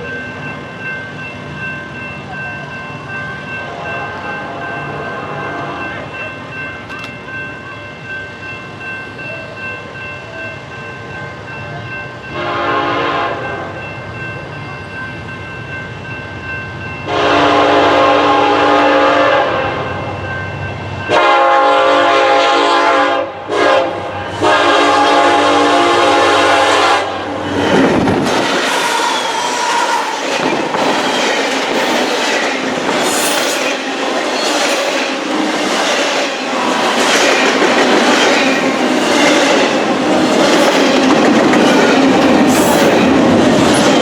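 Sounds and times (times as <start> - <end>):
train rumbling: 0.0 - 44.0
locomotive air horn blasts: 12.3 - 13.7, 17.1 - 19.9, 21.1 - 27.2.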